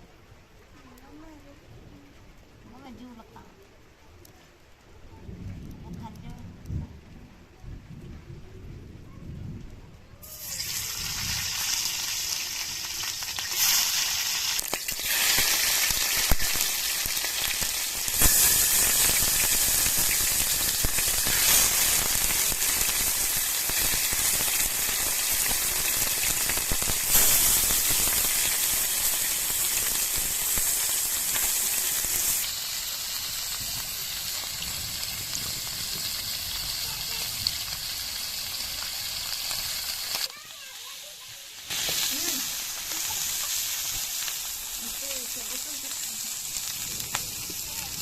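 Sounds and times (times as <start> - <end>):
food sizzling in hot oil: 10.2 - 48.0.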